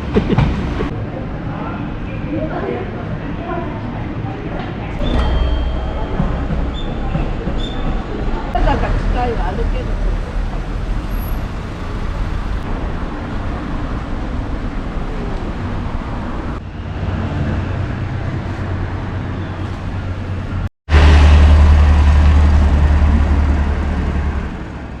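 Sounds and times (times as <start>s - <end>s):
vehicle rumbling: 0.0s - 1.4s, 4.8s - 25.0s.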